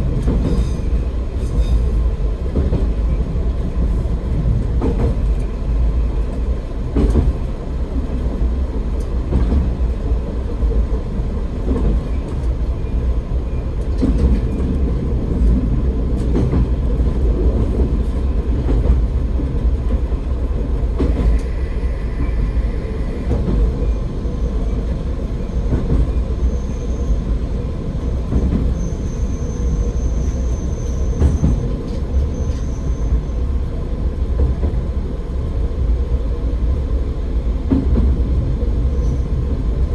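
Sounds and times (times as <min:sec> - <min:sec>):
railcar engine and wheels rumbling: 0:00.0 - 0:39.9.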